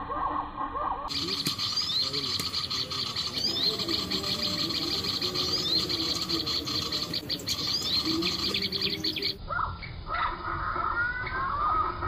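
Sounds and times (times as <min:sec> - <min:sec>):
small birds chirping: 0:01.1 - 0:10.0.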